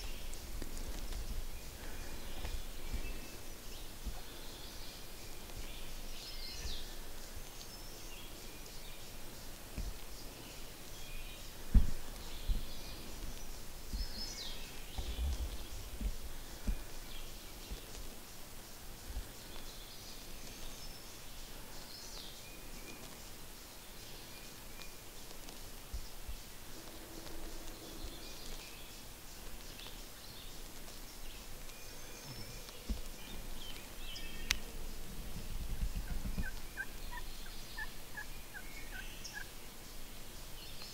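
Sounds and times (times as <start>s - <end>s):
outdoor background hiss: 0.0s - 40.9s
songbirds chirping: 0.0s - 40.9s
low thumps: 11.6s - 14.2s.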